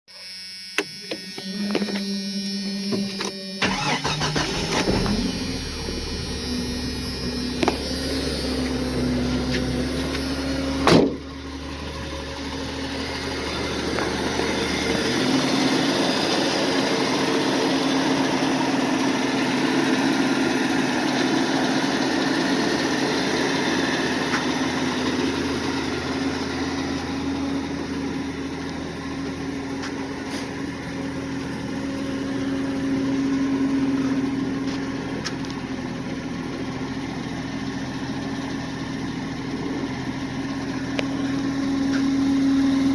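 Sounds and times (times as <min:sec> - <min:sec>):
starter motor cranking: 0:03.6 - 0:10.9
pickup engine idling: 0:03.6 - 0:42.9.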